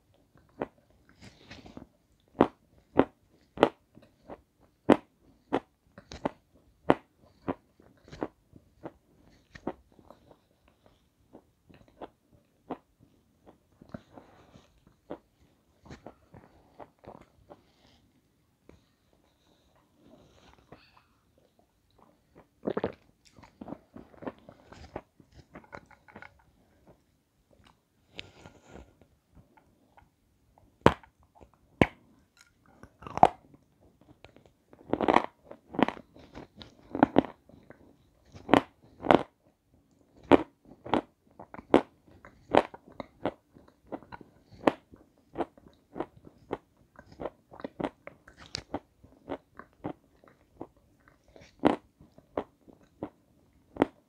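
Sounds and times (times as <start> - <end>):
crunchy chewing and biting: 32.4 - 33.5, 40.2 - 53.1.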